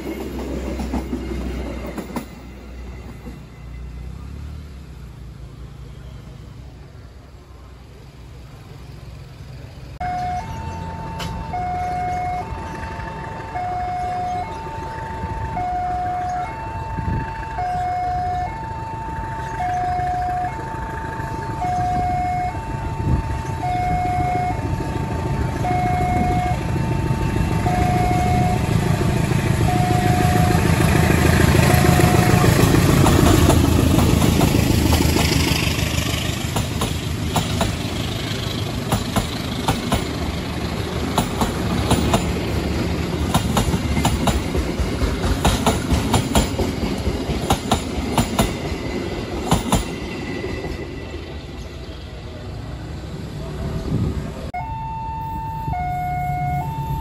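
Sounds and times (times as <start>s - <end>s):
diesel locomotive engine rumble: 0.0s - 57.0s
level crossing alarm two-tone: 15.5s - 20.8s, 21.6s - 24.8s, 25.6s - 28.7s, 54.6s - 57.0s.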